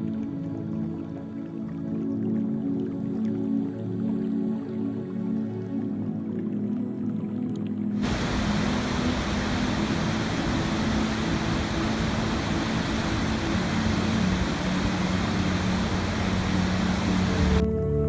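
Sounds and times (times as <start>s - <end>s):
soft sustained new-age music: 0.0s - 18.0s
rushing water: 7.9s - 17.6s.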